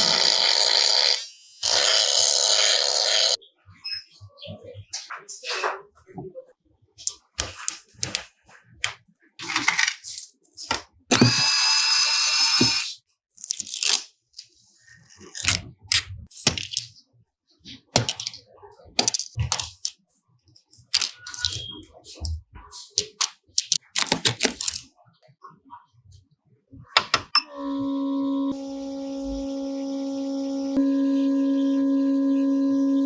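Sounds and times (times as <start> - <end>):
small power tool whining: 0.0 - 3.4, 11.1 - 12.9, 27.4 - 33.0
clicks cracks and scrapes: 13.3 - 17.0, 20.6 - 25.0.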